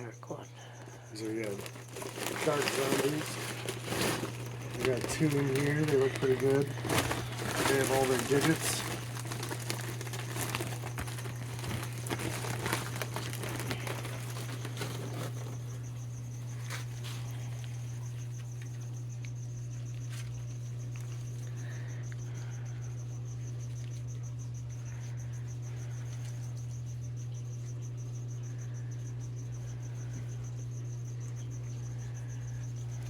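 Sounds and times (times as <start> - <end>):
constant low hum: 0.0 - 33.0
cricket chirping: 0.0 - 33.0
plastic bags crinkling: 0.7 - 15.9.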